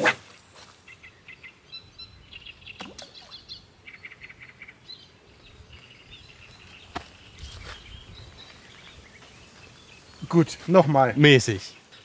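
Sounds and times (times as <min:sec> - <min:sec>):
short falling swish: 0:00.0 - 0:00.4
songbirds chirping and trilling: 0:00.0 - 0:12.0.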